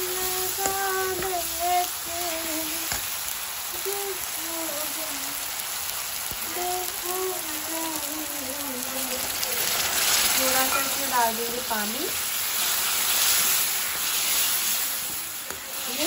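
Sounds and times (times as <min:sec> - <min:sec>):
food sizzling in hot oil: 0:00.0 - 0:16.0
woman humming: 0:03.8 - 0:05.3.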